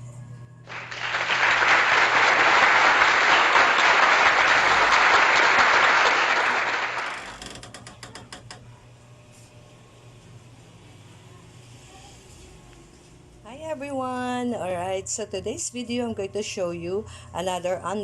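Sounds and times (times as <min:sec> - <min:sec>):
applause: 0:00.6 - 0:07.4.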